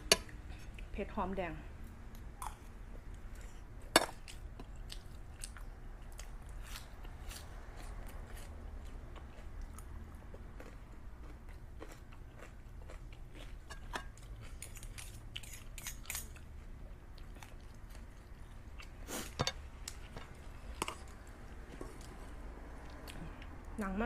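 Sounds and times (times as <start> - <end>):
person chewing food: 1.8 - 23.6.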